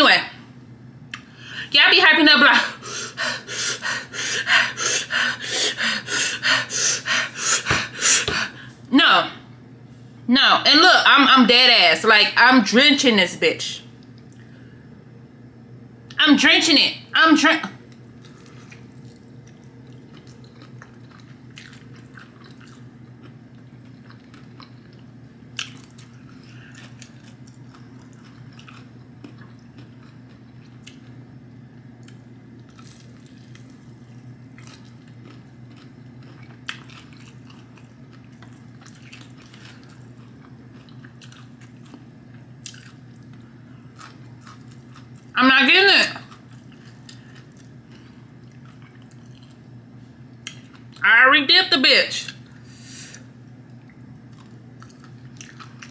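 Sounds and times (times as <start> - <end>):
steady low hum: 0.0 - 55.9
person chewing: 17.9 - 31.2, 32.0 - 45.3, 46.2 - 49.8, 50.4 - 51.0, 52.4 - 55.9.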